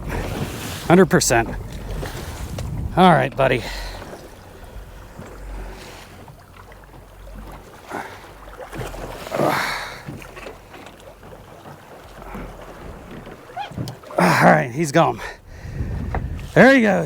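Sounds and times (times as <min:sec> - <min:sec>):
wind rumbling on microphone: 0:00.0 - 0:07.6, 0:14.7 - 0:17.0
water sloshing against hull: 0:00.0 - 0:17.0.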